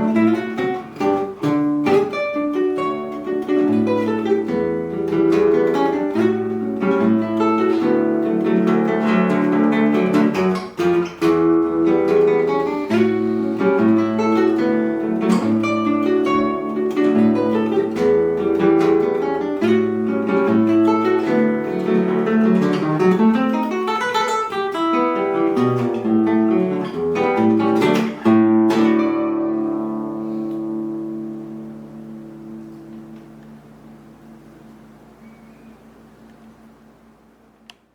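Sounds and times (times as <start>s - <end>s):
acoustic guitar plucked melody: 0.0s - 37.9s.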